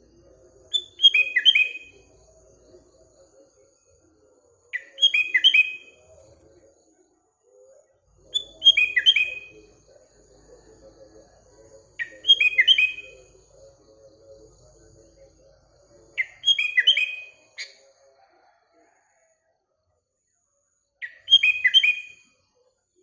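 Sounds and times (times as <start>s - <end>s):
bird singing bubbly phrases: 0.7s - 2.6s, 8.1s - 9.7s, 11.9s - 13.4s, 16.2s - 17.6s.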